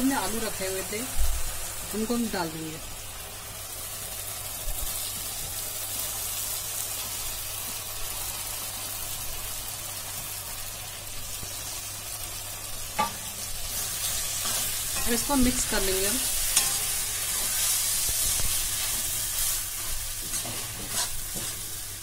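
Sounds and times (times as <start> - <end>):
oil sizzling in a pan: 0.0 - 22.0.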